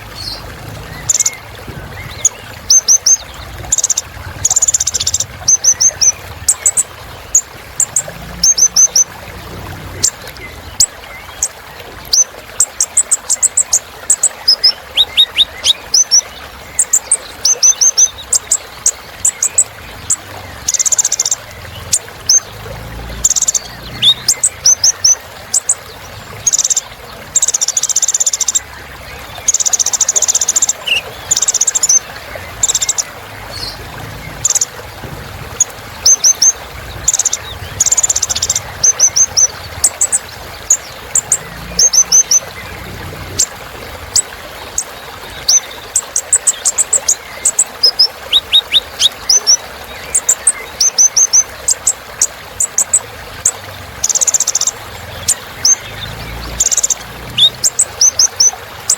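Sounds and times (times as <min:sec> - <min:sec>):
bird singing high chirps and trills: 0:00.0 - 0:58.9.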